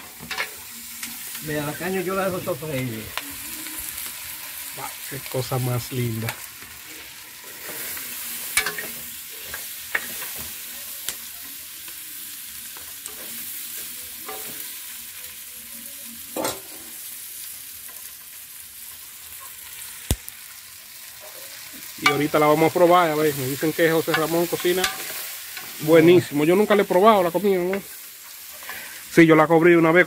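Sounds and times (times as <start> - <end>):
meat sizzling in a pot: 0.0 - 30.0
metal spoon stirring: 24.0 - 25.8.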